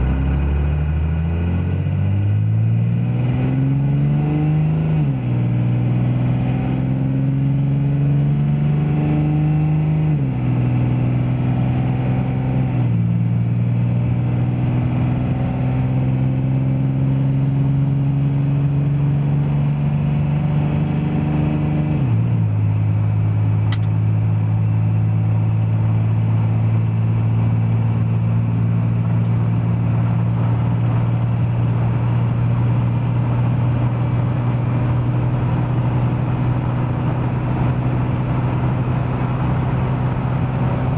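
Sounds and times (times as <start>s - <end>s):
diesel engine at full throttle: 0.0s - 40.9s
transmission shifting up: 23.6s - 24.1s.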